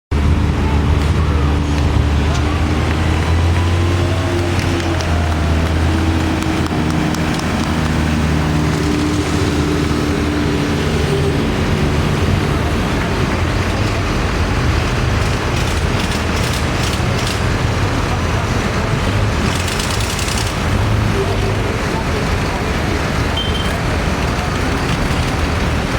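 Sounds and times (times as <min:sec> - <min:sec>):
tractor engines driving past: 0:00.1 - 0:25.9
sharp clicks: 0:04.4 - 0:09.1.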